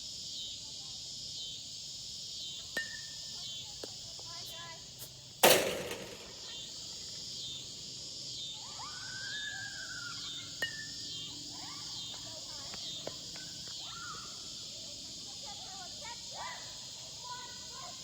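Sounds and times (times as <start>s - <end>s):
insects chorus: 0.0s - 18.0s
metal bat striking baseball: 5.4s - 6.6s.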